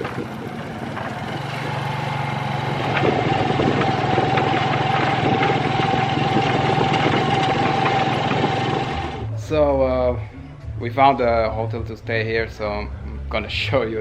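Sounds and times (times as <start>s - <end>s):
small engine running with whine: 0.0s - 9.4s.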